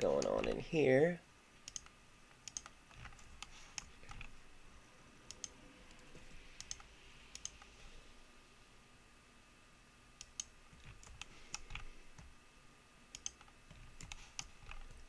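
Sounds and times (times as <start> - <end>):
mouse and keyboard clicks: 1.6 - 4.4, 5.3 - 7.7, 10.2 - 12.3, 13.1 - 15.0.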